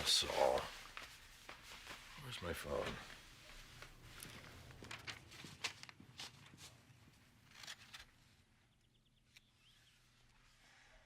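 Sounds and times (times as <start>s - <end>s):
faint footsteps: 0.0s - 7.2s.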